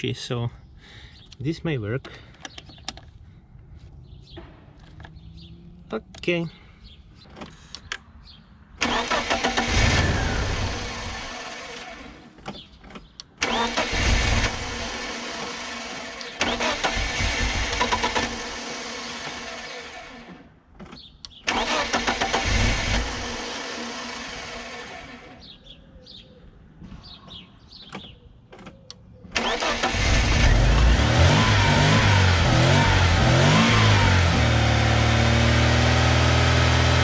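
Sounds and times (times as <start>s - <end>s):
car engine starting: 8.7s - 25.6s, 29.3s - 37.0s.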